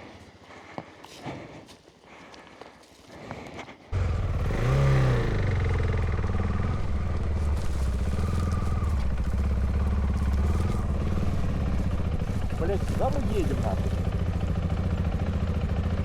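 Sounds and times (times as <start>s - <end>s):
motorcycle engine revving and running: 3.9s - 16.0s.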